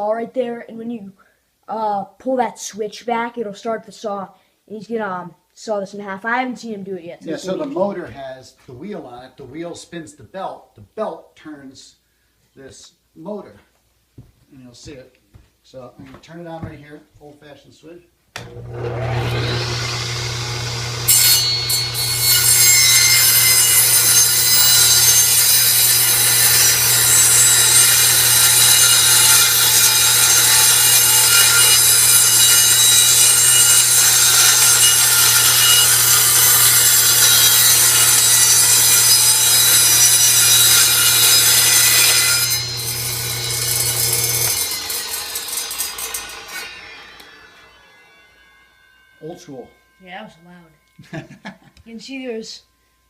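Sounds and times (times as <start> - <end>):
electric motor humming: 18.4 - 24.2, 42.5 - 47.9
circular saw cutting plywood: 18.4 - 48.9.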